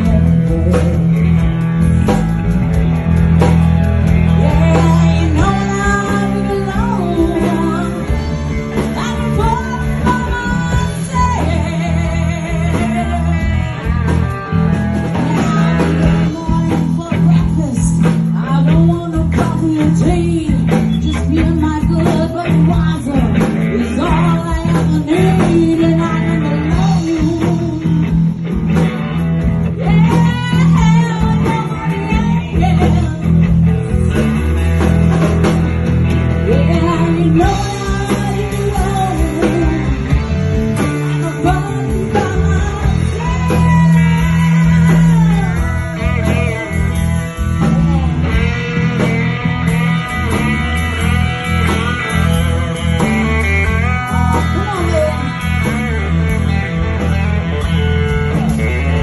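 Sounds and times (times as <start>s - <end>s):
person singing: 0.0s - 1.5s, 4.2s - 28.5s, 29.6s - 34.2s, 36.3s - 49.1s, 51.4s - 59.0s
live blues-rock band playing: 0.0s - 59.0s.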